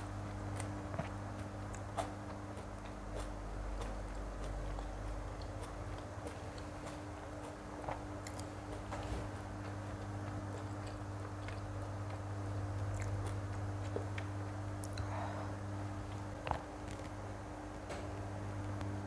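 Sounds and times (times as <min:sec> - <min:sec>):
wet chewing: 0:00.0 - 0:15.2
low hum: 0:00.0 - 0:19.0.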